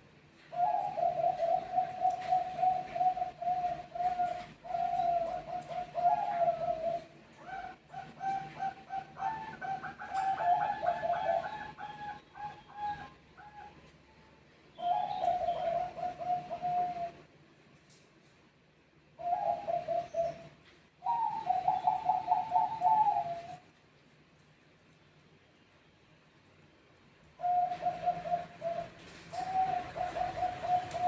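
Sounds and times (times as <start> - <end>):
doves cooing in stuttering notes: 0.6 - 13.8, 14.8 - 17.3, 19.2 - 23.6, 27.4 - 31.0.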